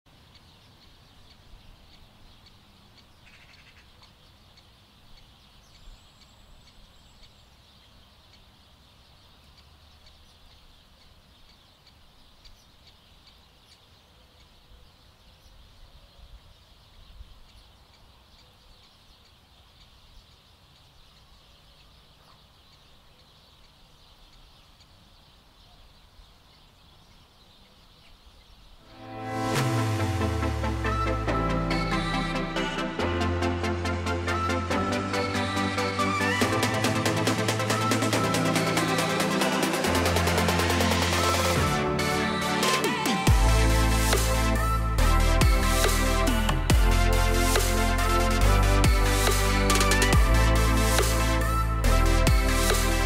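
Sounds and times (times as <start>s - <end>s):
distant bird calls: 0.1s - 33.1s.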